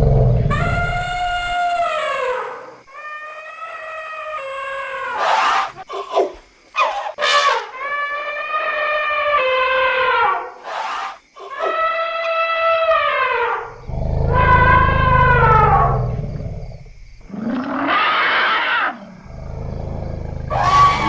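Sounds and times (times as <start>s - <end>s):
elephant trumpet calls: 0.5s - 2.5s, 20.5s - 21.0s
elephant harsh blasts: 20.5s - 21.0s.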